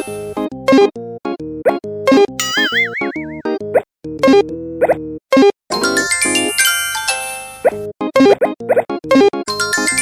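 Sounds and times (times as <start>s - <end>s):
bouncy children's music: 2.1s - 5.0s, 5.7s - 10.0s
wobbling cartoon tone: 2.4s - 3.5s.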